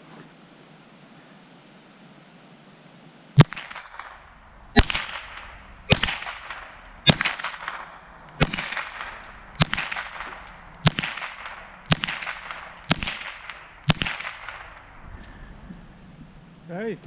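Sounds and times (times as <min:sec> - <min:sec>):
rifle shots with echo: 0:03.4 - 0:15.0.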